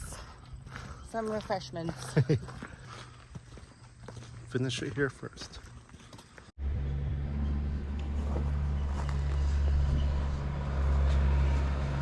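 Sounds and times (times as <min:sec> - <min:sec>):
low engine hum: 0:06.6 - 0:12.0.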